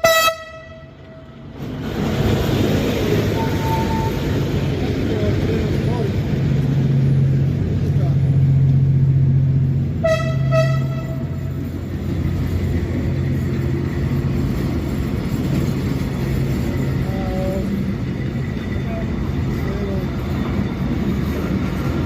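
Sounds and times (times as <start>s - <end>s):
steam locomotive whistle: 0.0s - 1.0s, 3.4s - 4.3s, 10.0s - 11.4s
voices: 3.0s - 8.8s, 16.7s - 21.8s.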